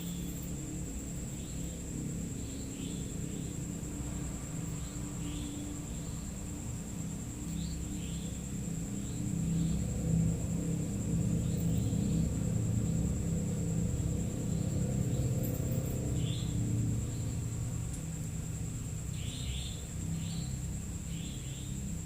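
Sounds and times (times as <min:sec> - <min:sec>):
night insects trilling: 0:00.0 - 0:22.0.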